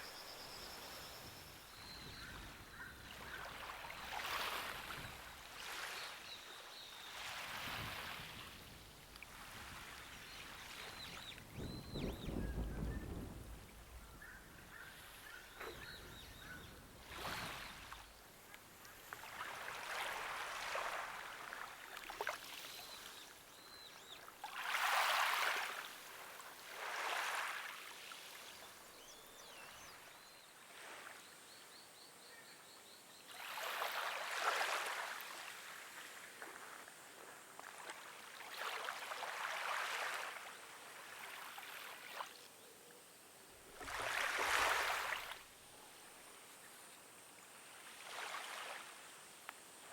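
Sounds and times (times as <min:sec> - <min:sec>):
small waves washing onto shore: 0:02.4 - 0:11.7, 0:16.9 - 0:23.5, 0:24.3 - 0:28.9, 0:33.4 - 0:42.4, 0:43.7 - 0:45.6, 0:47.3 - 0:49.9
faint bird chirps: 0:14.0 - 0:18.0.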